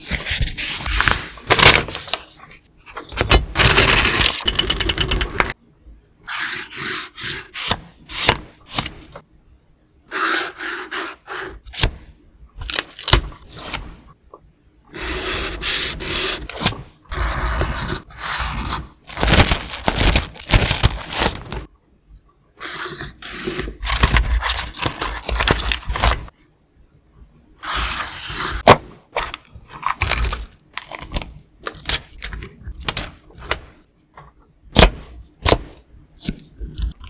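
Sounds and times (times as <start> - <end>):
paper rubbing and rustling: 0.0 - 2.6, 17.4 - 21.7, 23.2 - 26.3.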